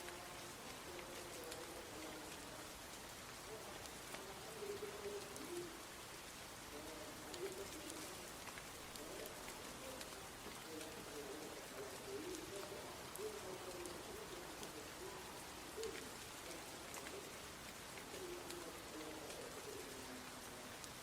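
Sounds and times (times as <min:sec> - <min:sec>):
rain falling: 0:00.0 - 0:21.0.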